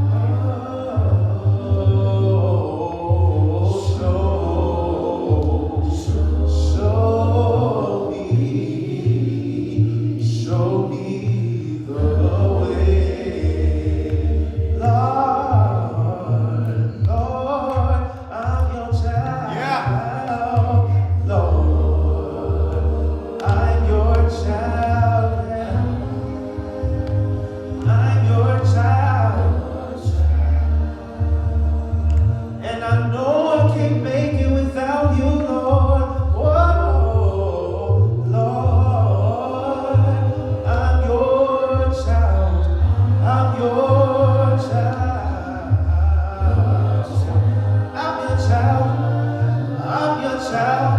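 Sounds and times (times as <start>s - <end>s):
congregation singing a hymn: 0.0s - 50.9s
sustained low bass notes: 0.0s - 50.9s.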